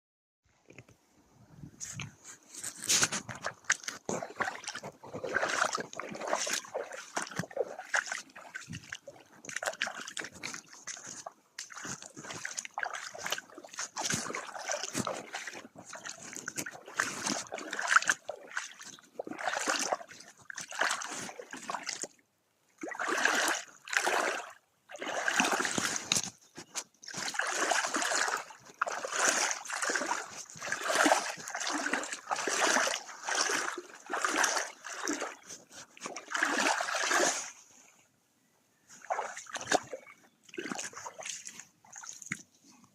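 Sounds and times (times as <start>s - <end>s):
water splashing and sloshing: 1.8s - 38.1s, 38.9s - 42.9s.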